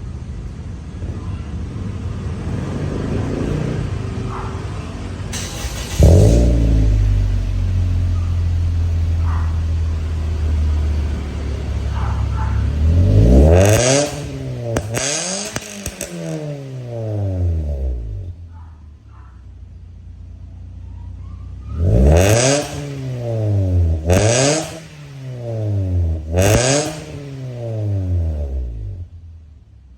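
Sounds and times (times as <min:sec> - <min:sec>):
car engine revving through exhaust: 0:05.4 - 0:18.9, 0:21.6 - 0:29.4.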